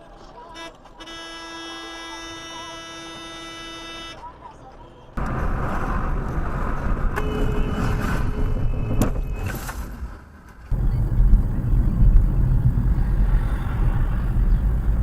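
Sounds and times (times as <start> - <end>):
car road and engine noise: 4.2 - 9.8, 10.4 - 15.0
deep rumble of car on road: 5.2 - 9.1, 10.7 - 15.0.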